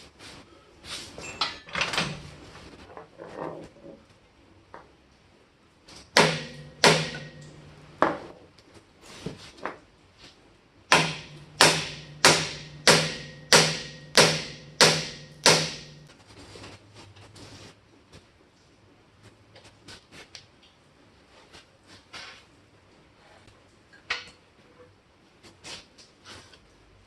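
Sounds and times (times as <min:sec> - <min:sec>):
hammer striking steel: 0:06.2 - 0:08.0, 0:10.9 - 0:16.1.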